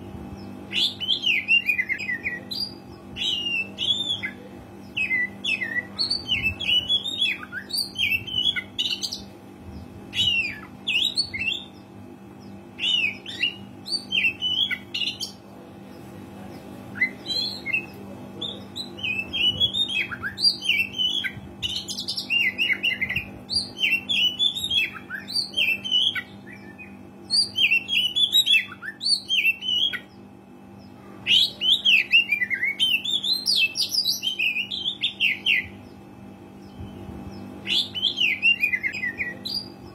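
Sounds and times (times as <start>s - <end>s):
faint steady hum: 0.0s - 39.9s
bird singing whistled phrases: 31.3s - 35.7s, 36.7s - 39.7s.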